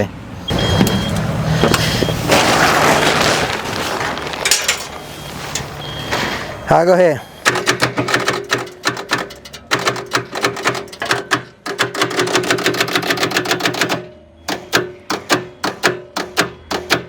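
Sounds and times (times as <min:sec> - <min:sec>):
engine starter clicking rapidly: 0:07.4 - 0:17.0.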